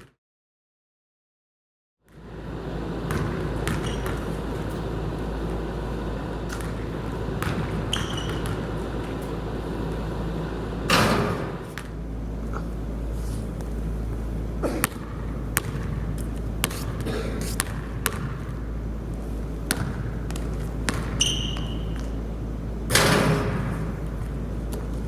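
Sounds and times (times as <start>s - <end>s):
basketball bouncing on hard court: 2.1s - 9.4s, 14.7s - 18.7s, 19.6s - 22.2s
noisy clatter: 2.1s - 12.7s
high squeak: 21.2s - 22.0s.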